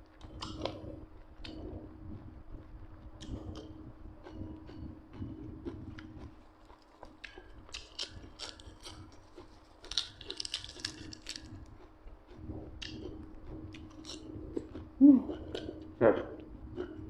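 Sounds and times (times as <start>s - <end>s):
person chewing crunchy food: 0.1s - 17.0s.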